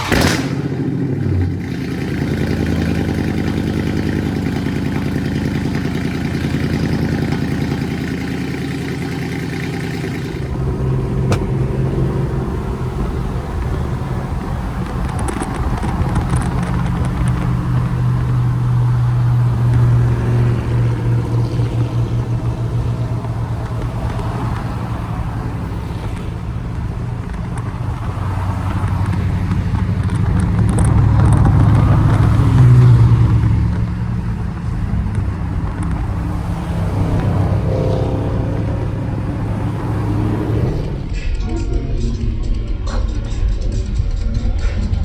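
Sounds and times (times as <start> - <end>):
car engine exhaust rumble: 0.0 - 41.6.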